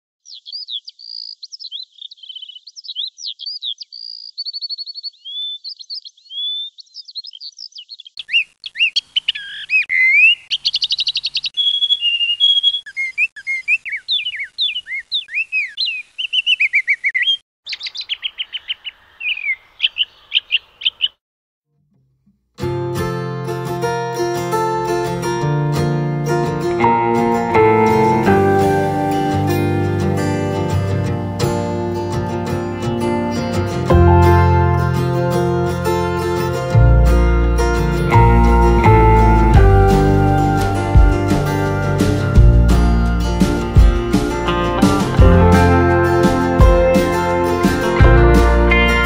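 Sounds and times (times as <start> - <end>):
songbirds singing and chirping: 0.2 - 21.2.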